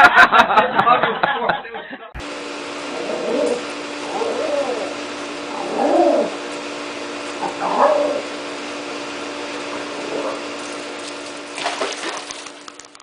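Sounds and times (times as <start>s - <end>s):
steady low hum: 2.2s - 13.0s
dog whimpering: 3.0s - 6.4s, 7.4s - 8.3s.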